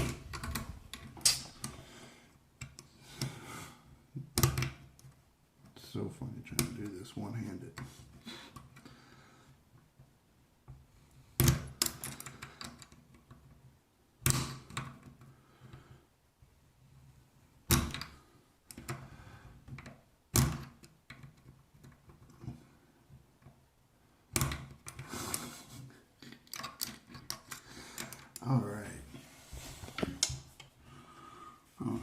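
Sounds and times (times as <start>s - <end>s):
clicks and rattles of faucet parts: 0.0s - 1.8s, 26.2s - 28.4s.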